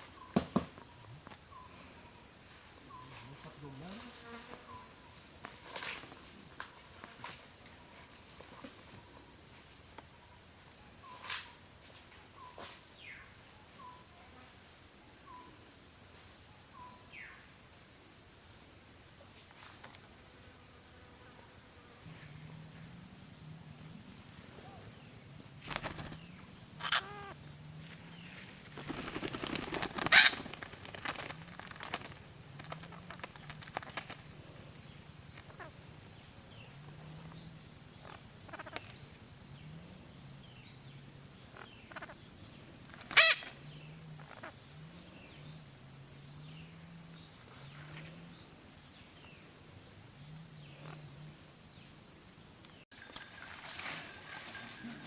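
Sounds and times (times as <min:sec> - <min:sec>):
high insect drone: 0:00.0 - 0:55.0
frogs croaking: 0:16.5 - 0:55.0.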